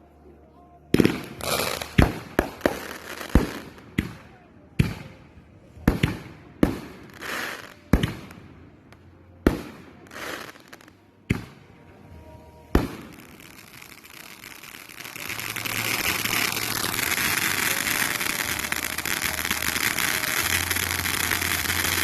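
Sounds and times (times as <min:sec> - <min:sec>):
fireworks bursting with hiss: 0:01.0 - 0:04.2, 0:05.9 - 0:08.4, 0:09.5 - 0:11.7, 0:12.7 - 0:22.0.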